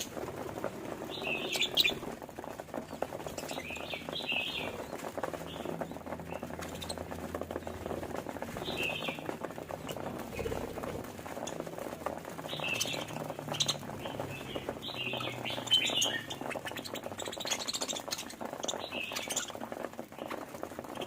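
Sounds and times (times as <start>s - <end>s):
light clicking and scratching: 0.0s - 21.0s
budgerigars chirping: 12.4s - 19.7s.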